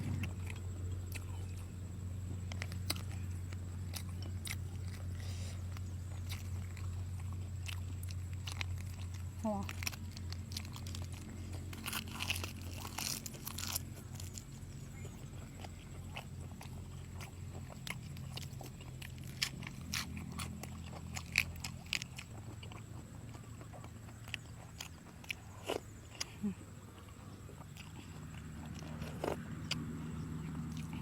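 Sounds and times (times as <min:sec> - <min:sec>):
low hum: 0:00.0 - 0:24.6
crunchy bites: 0:00.0 - 0:31.0
wet chewing: 0:00.0 - 0:31.0
crackling: 0:02.3 - 0:26.6.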